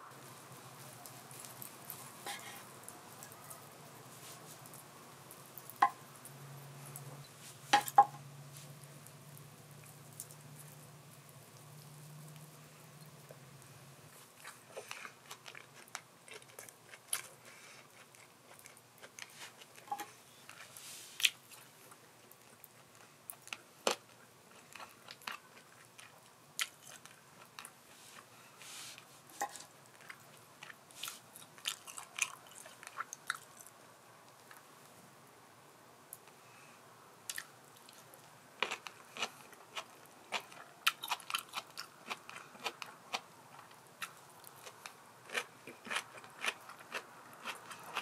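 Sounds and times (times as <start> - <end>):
person chewing and biting: 14.2 - 21.7, 38.6 - 48.0.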